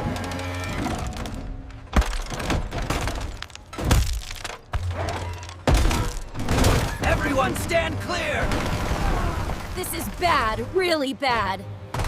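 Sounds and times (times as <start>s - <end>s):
background music: 4.7s - 12.0s.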